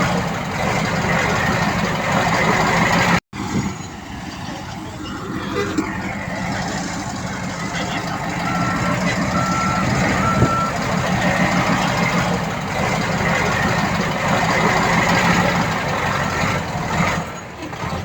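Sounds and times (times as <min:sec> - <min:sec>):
heavy machine engine running: 0:00.0 - 0:18.0
reverse alarm beeping: 0:08.3 - 0:10.8.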